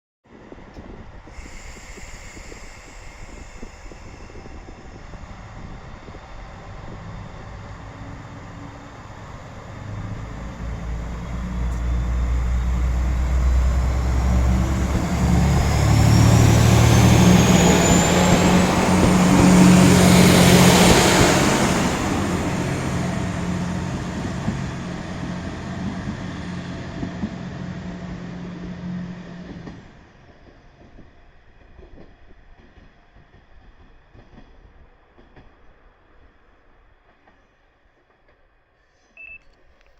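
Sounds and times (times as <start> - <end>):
diesel railcar engine revving: 1.4 - 29.8.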